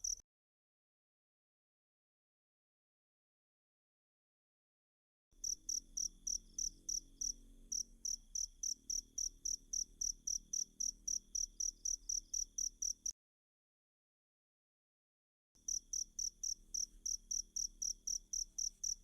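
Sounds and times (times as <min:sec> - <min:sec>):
cricket chirping: 0:00.0 - 0:00.2, 0:05.4 - 0:13.1, 0:15.6 - 0:19.0.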